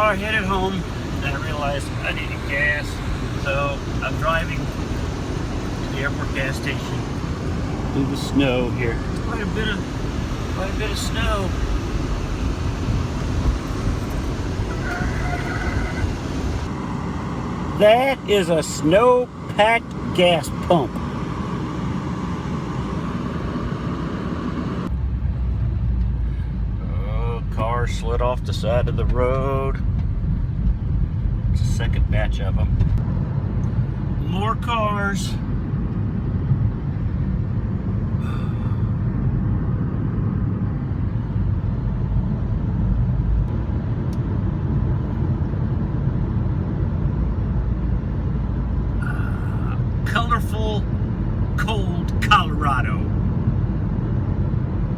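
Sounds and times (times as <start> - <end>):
car engine and road noise: 0.0 - 54.9
brief high tone: 14.7 - 16.2.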